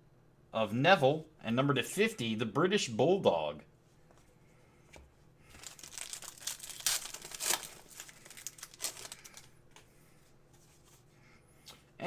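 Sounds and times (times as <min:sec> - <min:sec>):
foil wrapper crinkling and tearing: 0:05.5 - 0:09.6.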